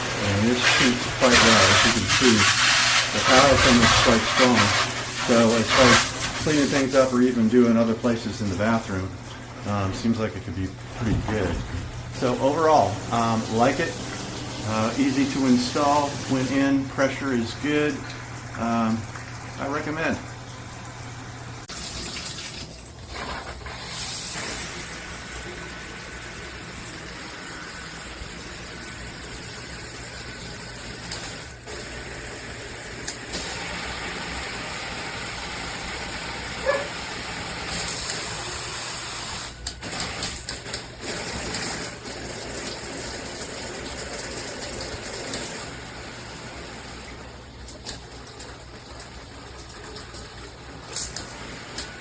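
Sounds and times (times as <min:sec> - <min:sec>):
water spraying from shower head: 0:00.0 - 0:09.0, 0:10.9 - 0:19.0, 0:23.1 - 0:29.2, 0:30.9 - 0:47.0.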